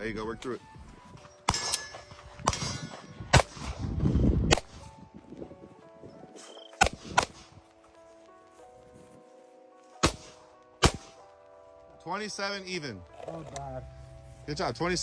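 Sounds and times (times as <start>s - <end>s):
pistol shots: 1.5s - 3.9s, 4.5s - 4.9s, 6.8s - 7.6s, 10.0s - 11.2s.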